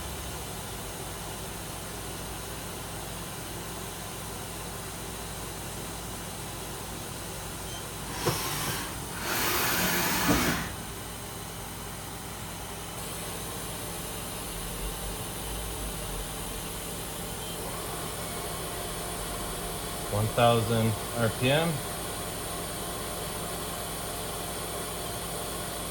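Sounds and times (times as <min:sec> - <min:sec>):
machining center humming: 0:07.4 - 0:11.5.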